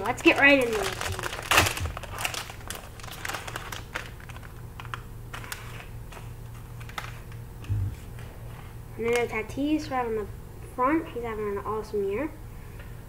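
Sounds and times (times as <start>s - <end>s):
card pack wrapper crinkling: 0.0s - 7.4s.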